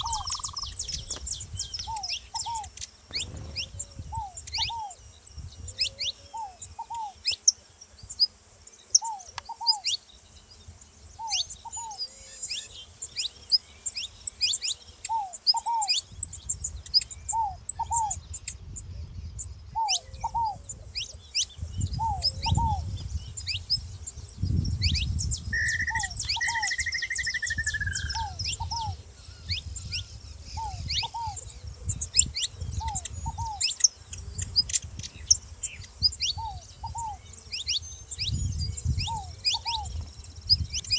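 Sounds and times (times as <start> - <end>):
dove cooing: 0.0 - 5.0, 19.7 - 23.0, 25.5 - 29.1, 30.5 - 34.4, 36.3 - 37.2, 39.0 - 40.0
finch chirping and singing: 0.0 - 7.4, 11.2 - 40.9.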